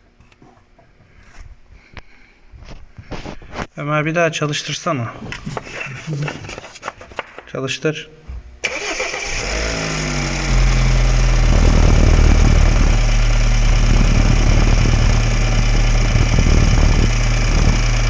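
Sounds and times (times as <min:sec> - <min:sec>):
car engine idling: 0:08.7 - 0:18.0.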